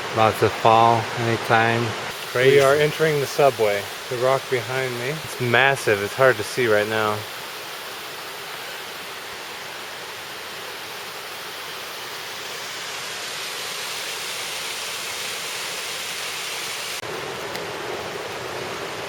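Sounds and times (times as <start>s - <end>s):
creek water rushing over waterfall: 0.0s - 19.0s.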